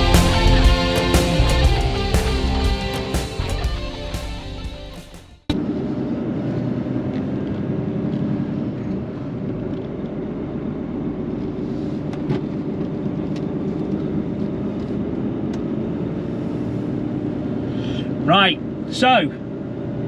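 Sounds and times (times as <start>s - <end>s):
rock music: 0.0s - 5.6s
lorry engine running: 0.0s - 6.4s.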